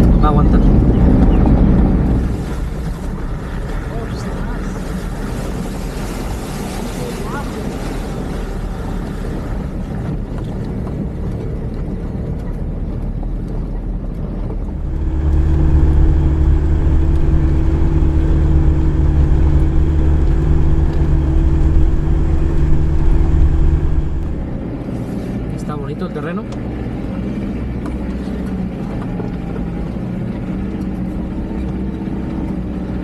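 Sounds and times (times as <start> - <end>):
vehicle engine heard from inside: 14.7 - 24.6.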